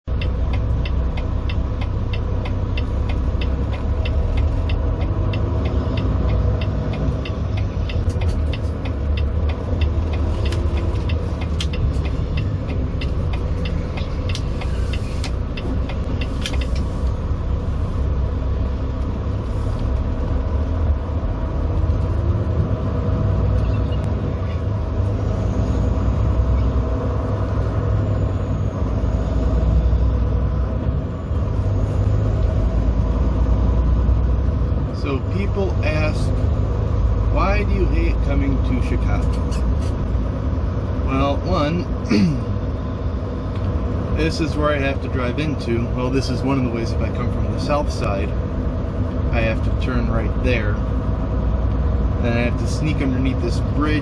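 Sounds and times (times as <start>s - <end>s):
road noise: 0.0s - 54.0s
truck diesel engine rumble: 0.1s - 54.0s
rapid regular ticking: 0.2s - 16.7s.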